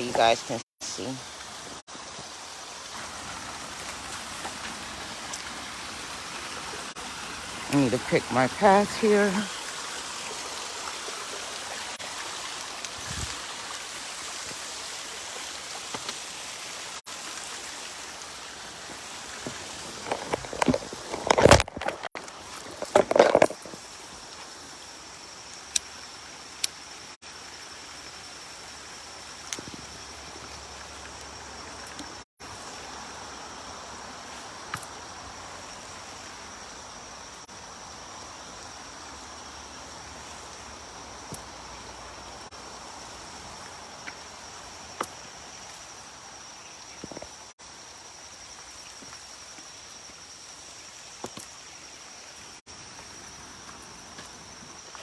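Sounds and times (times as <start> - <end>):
insects buzzing: 0.0 - 55.0
footsteps on a trail: 18.8 - 24.5
loud crunching scuff: 19.4 - 23.8.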